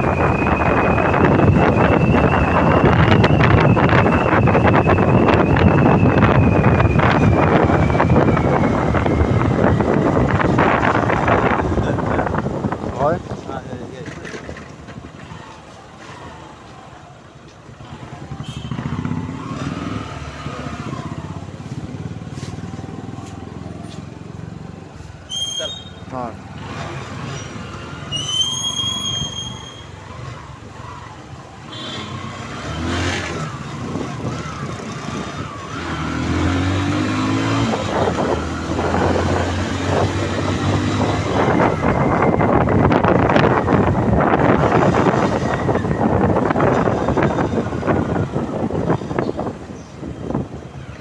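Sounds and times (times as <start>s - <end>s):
wind on microphone: 0.0s - 13.9s, 32.8s - 51.0s.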